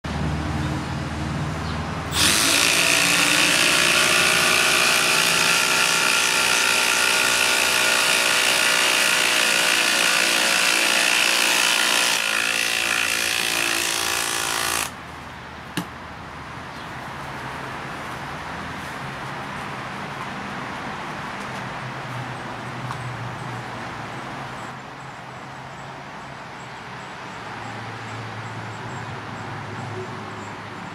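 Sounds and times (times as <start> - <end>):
impact driver whirring hammer: 2.1 - 15.0.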